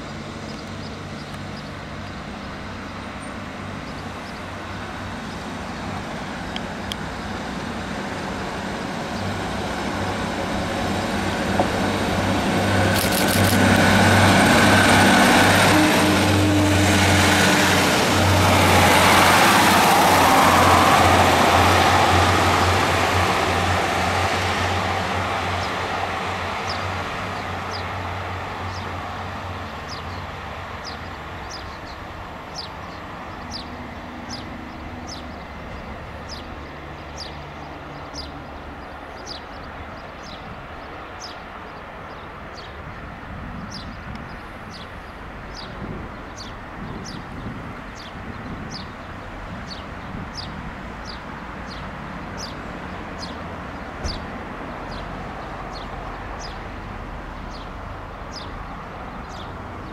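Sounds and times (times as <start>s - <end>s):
diesel train engine drone: 0.0s - 59.9s
wheel-on-rail rushing noise: 4.5s - 30.6s
birds chirping: 29.7s - 42.8s, 49.7s - 56.7s, 57.4s - 59.9s.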